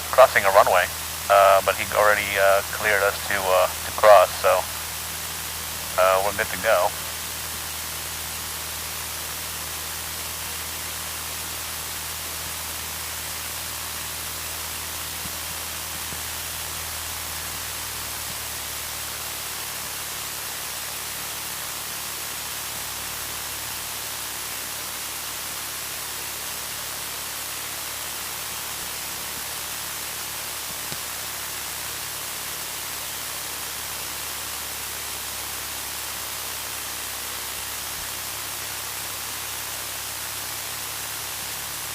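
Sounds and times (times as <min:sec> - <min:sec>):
headset intercom hiss: 0:00.0 - 0:08.8
aircraft engine hum: 0:00.0 - 0:11.6.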